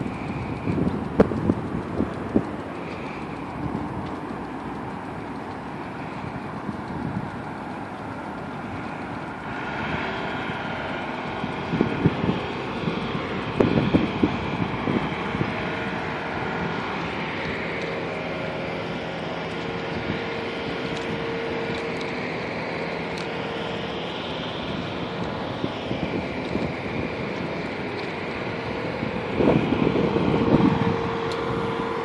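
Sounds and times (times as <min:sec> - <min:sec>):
vehicle hum: 0:00.0 - 0:32.0
wind buffeting microphone: 0:00.0 - 0:32.0.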